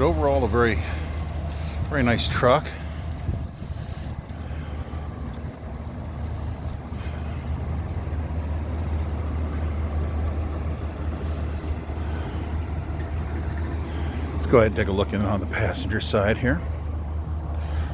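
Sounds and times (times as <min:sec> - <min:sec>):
pickup engine idling: 0:00.0 - 0:17.9.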